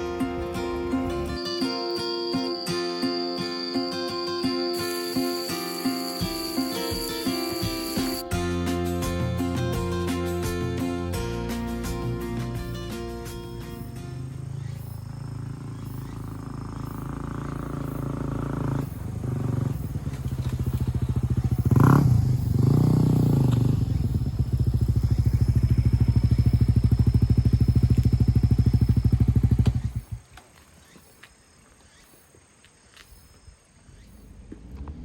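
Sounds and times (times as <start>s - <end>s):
motorcycle engine running: 4.8s - 8.2s, 13.7s - 30.3s.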